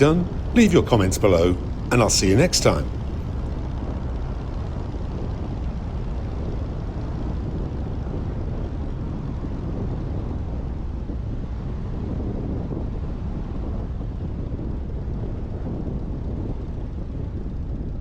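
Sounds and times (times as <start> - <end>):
light aircraft engine and propeller: 0.0 - 18.0
wind noise: 0.0 - 18.0.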